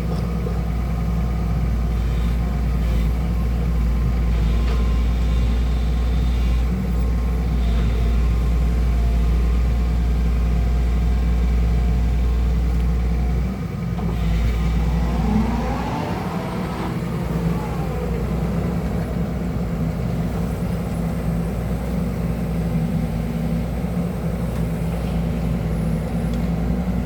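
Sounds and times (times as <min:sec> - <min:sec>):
diesel engine rumbling: 0:00.0 - 0:27.0
rising tone: 0:14.8 - 0:19.3.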